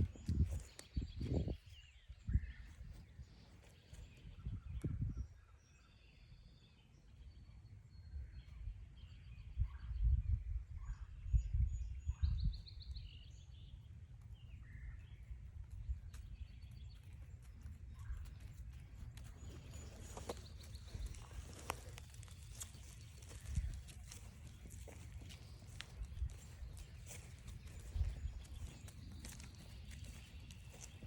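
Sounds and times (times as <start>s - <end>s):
footsteps crunching on trail: 0.0s - 4.2s, 14.7s - 31.0s
birds calling: 12.4s - 31.0s.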